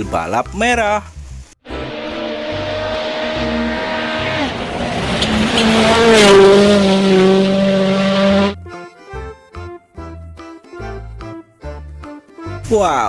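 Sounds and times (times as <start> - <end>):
gravel and tyre noise: 1.7 - 8.6
rally car engine running hard: 1.7 - 8.6.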